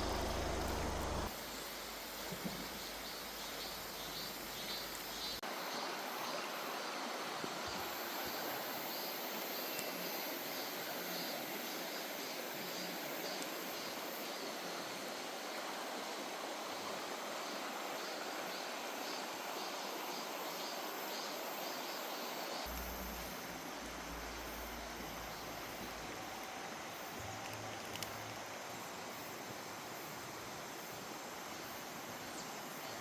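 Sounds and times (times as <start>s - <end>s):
stream rushing over rocks: 22.7s - 33.0s.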